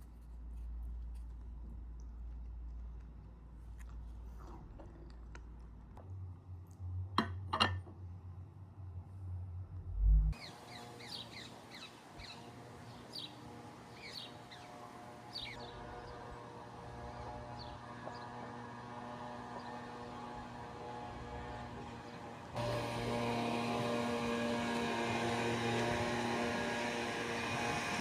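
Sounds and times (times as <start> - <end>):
low hum: 8.8 - 10.5
bird chirping: 10.4 - 15.7.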